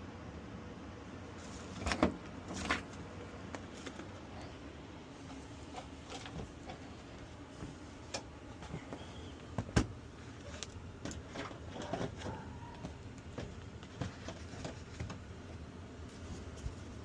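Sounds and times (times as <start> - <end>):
air handler blower hum: 0.0 - 17.0.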